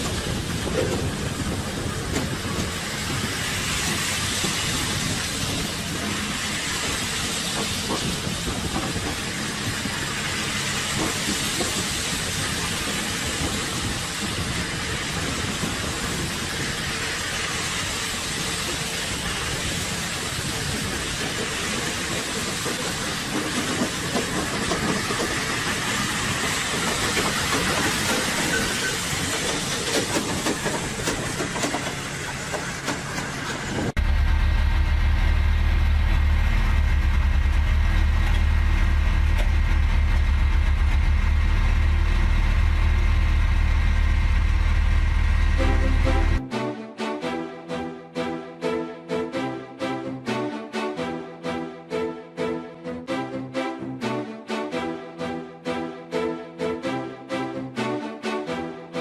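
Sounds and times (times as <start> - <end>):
hiss: 0.0 - 33.9
vehicle running rumble: 30.3 - 46.4
faint engine hum: 34.0 - 46.4.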